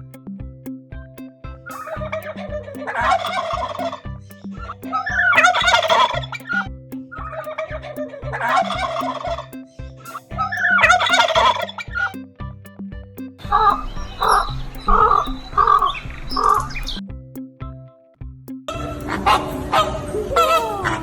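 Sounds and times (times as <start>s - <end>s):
background music with beat: 0.0s - 21.0s
turkey gobbling: 1.7s - 12.2s.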